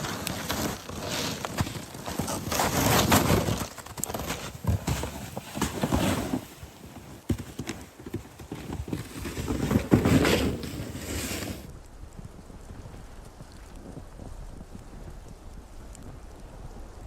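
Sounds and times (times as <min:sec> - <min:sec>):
footsteps crunching in snow: 0:00.0 - 0:11.7.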